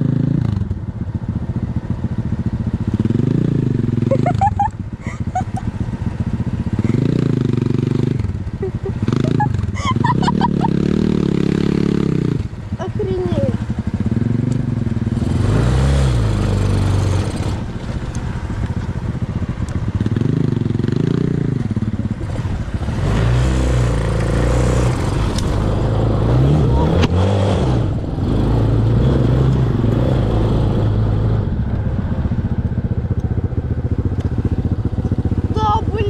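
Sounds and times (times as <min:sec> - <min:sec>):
small engine revving: 0:02.9 - 0:19.0, 0:19.6 - 0:31.5.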